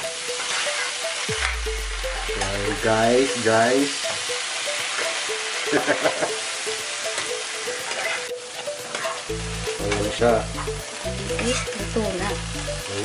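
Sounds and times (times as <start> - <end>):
vegetables sizzling in a pan: 0.0 - 13.0
metal spoon stirring: 7.2 - 9.2.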